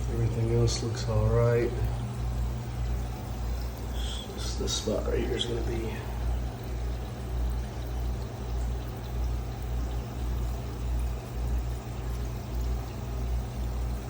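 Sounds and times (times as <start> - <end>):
water running: 0.0 - 14.0.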